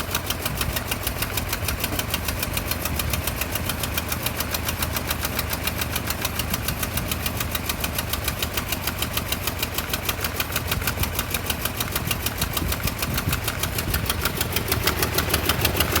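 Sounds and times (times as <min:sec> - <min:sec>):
engine idling roughly: 0:00.0 - 0:16.0.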